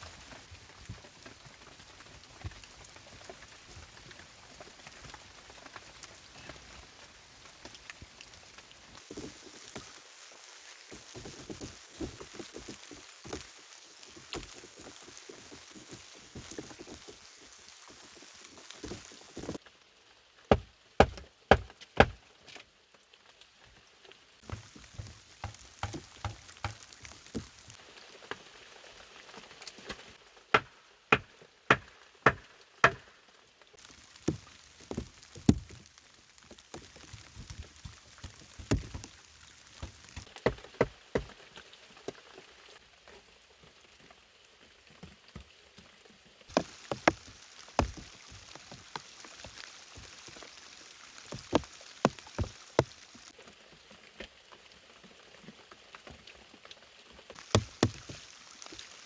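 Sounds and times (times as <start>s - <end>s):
steady rain falling: 0.0s - 59.0s
sharp knocks: 30.6s - 33.1s.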